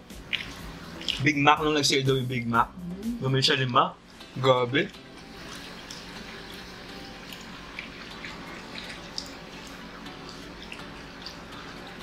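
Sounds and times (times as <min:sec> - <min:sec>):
chewing and lip-smacking: 0:00.2 - 0:01.2
steady low hum: 0:01.9 - 0:04.2.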